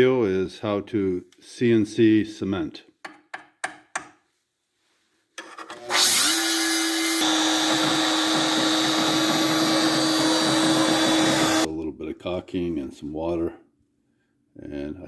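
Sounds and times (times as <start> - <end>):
power tool motor running: 5.8 - 11.7.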